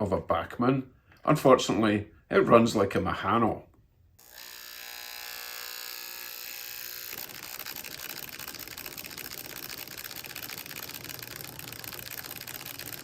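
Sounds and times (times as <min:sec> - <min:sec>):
small electric motor whine: 0:04.2 - 0:13.0.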